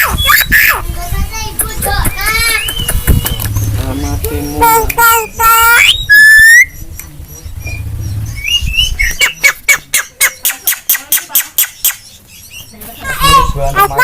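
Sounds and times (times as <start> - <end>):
myna calling: 0.0 - 1.0, 1.6 - 6.8, 7.5 - 14.0
sharp clicking bird notes: 1.5 - 5.2, 6.9 - 12.2.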